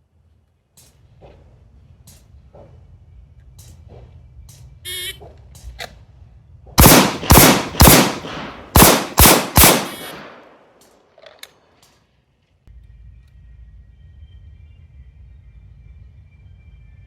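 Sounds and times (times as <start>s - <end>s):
gunshots: 6.8s - 10.8s
shot timer beep: 9.6s - 10.4s.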